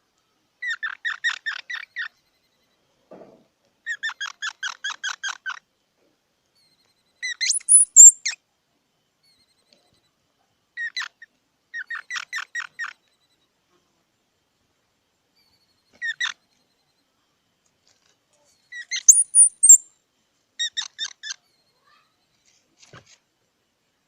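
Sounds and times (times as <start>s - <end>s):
squirrel high squeal: 6.6s - 8.4s, 18.5s - 19.8s
squirrel chirping alarm calls: 7.2s - 8.4s, 15.4s - 16.4s, 18.7s - 19.9s, 20.6s - 21.5s.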